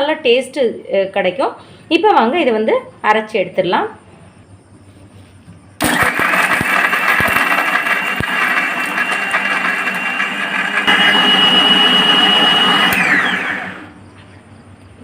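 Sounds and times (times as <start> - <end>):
mixer grinder whining: 5.8 - 14.0.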